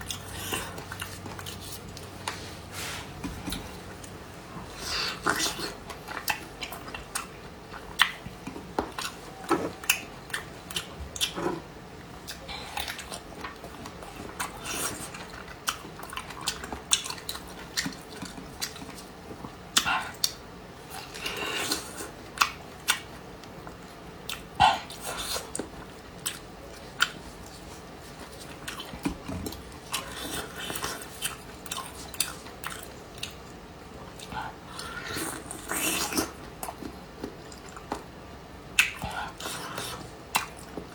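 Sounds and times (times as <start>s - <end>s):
person chewing food: 0.0s - 38.1s, 38.7s - 40.9s.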